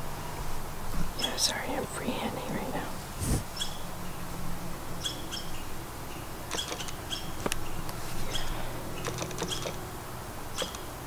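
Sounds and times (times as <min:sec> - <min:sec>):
low steady hum: 0:00.0 - 0:11.0
songbird chirping: 0:01.1 - 0:09.9
sharp click: 0:06.5 - 0:07.6, 0:09.0 - 0:09.8, 0:10.6 - 0:10.9.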